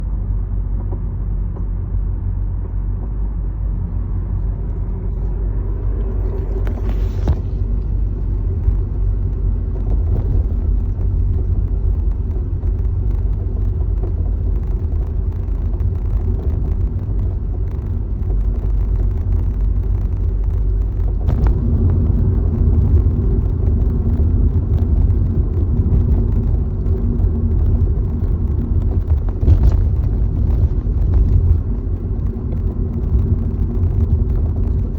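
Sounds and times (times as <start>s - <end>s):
car low rumble: 0.0s - 34.9s
suspension knocks: 27.6s - 34.8s.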